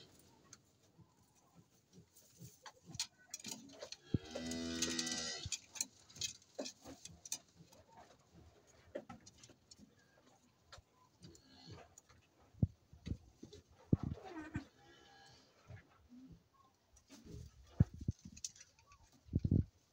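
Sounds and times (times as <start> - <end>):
cow mooing: 4.0 - 5.5.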